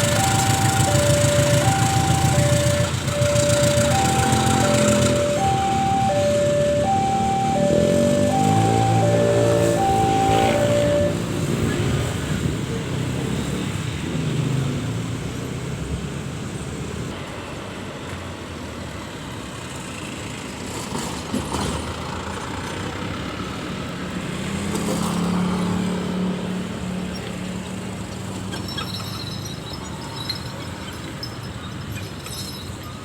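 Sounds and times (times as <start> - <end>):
locomotive engine rumbling: 0.0 - 12.4.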